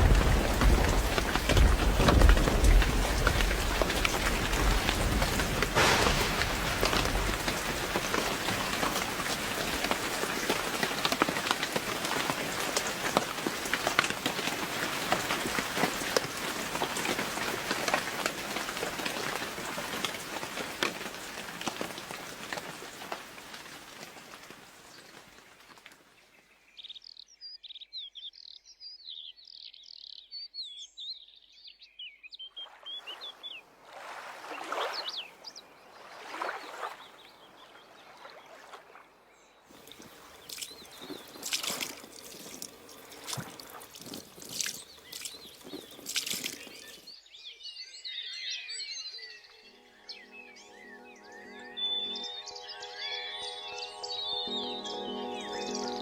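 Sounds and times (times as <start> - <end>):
rain drops tapping: 0.0 - 26.0, 39.7 - 47.1
songbird twittering: 39.8 - 56.0.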